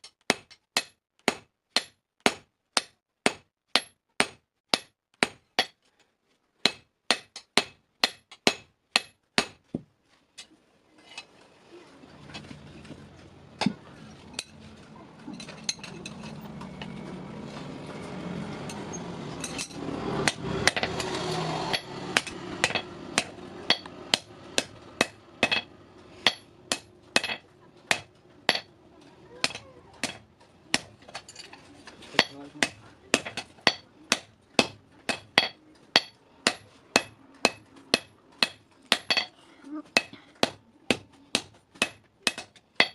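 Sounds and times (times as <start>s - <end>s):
hammer striking steel on anvil: 0.0s - 5.8s, 6.6s - 9.6s, 18.7s - 28.7s, 29.4s - 31.4s, 32.2s - 39.3s, 40.0s - 42.9s
steady background noise: 6.7s - 42.9s.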